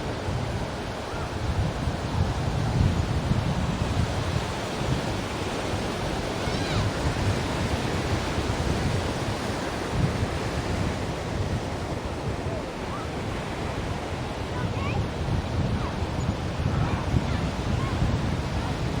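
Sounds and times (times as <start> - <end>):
ocean waves on shore: 0.0 - 19.0.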